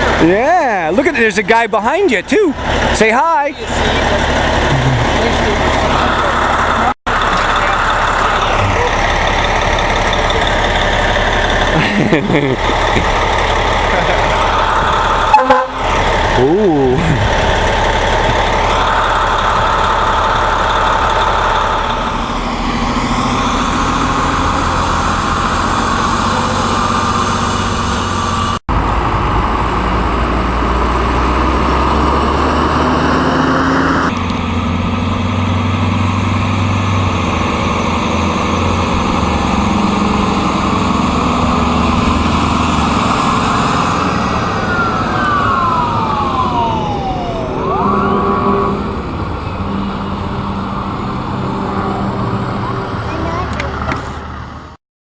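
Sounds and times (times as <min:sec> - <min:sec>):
fire truck engine humming: 0:00.0 - 0:54.8
whine falling in pitch: 0:44.4 - 0:49.1.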